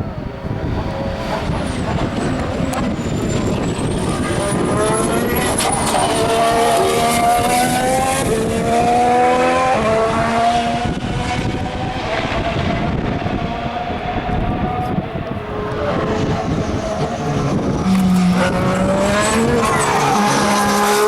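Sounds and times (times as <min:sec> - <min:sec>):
race car engine accelerating: 0:00.0 - 0:21.0
track noise: 0:00.0 - 0:21.0.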